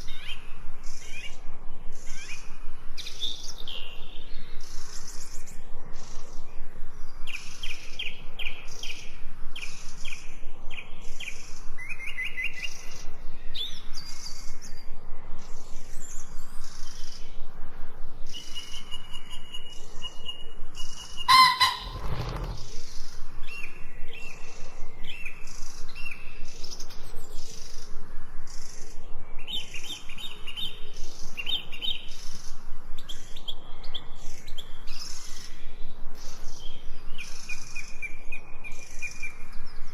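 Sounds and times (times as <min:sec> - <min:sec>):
birds chirping in trills: 0:21.0 - 0:22.7.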